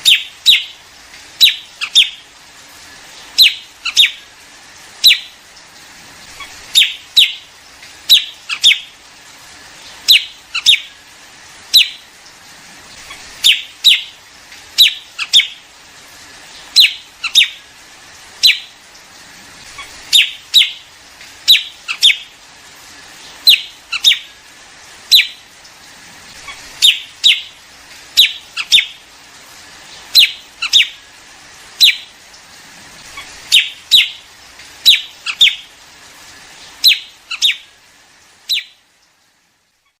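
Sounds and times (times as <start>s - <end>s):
bird calls from a recording: 0.0s - 2.3s, 3.4s - 4.4s, 5.0s - 5.4s, 6.2s - 9.0s, 9.8s - 11.1s, 11.7s - 12.1s, 12.9s - 15.7s, 16.4s - 18.8s, 19.6s - 22.4s, 23.2s - 24.5s, 25.1s - 25.5s, 26.3s - 29.1s, 29.9s - 32.3s, 33.0s - 35.8s, 36.6s - 37.8s, 38.4s - 38.9s.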